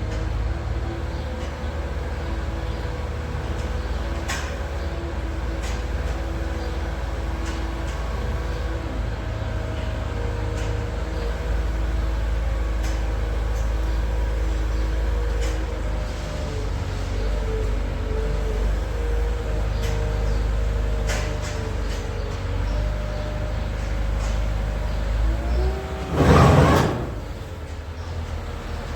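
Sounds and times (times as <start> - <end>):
tractor engine rumbling: 24.5 - 28.9.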